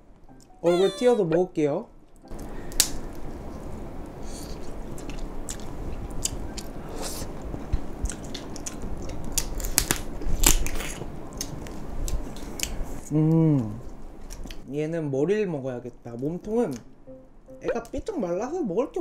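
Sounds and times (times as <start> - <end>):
wet chewing: 4.4 - 6.7, 7.6 - 12.8.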